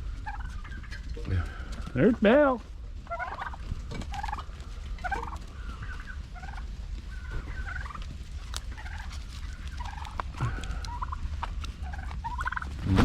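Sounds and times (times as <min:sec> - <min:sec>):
turkeys chirping: 0:00.0 - 0:13.0.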